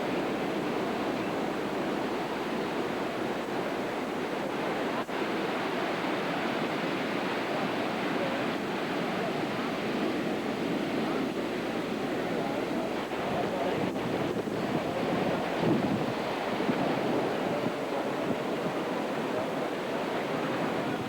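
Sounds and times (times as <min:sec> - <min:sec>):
surf breaking on shore: 0:00.0 - 0:21.0
storm wind on microphone: 0:13.1 - 0:19.2.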